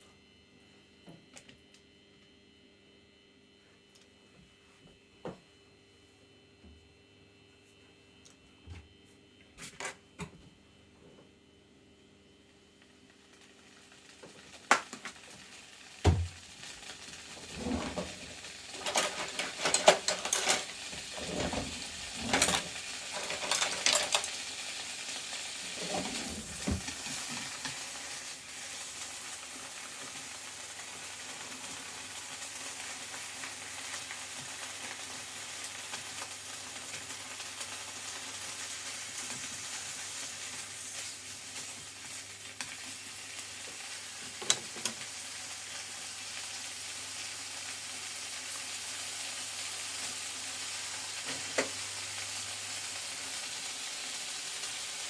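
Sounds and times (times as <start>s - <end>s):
mushrooms sizzling in butter: 12.9s - 55.0s
utensil stirring in a pan: 25.1s - 27.9s.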